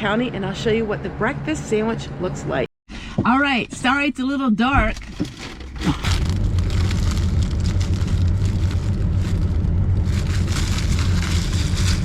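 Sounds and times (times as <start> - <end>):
car engine and road rumble: 4.9 - 12.0.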